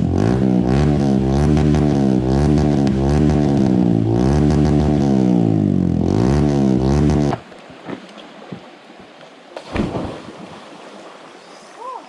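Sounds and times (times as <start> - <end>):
dirt bike engine revving: 0.0 - 7.4.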